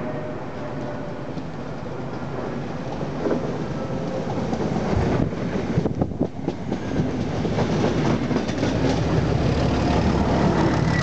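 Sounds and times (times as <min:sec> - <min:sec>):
low train rumble: 0:00.0 - 0:11.0
wheels clicking over rail joints: 0:03.2 - 0:11.0.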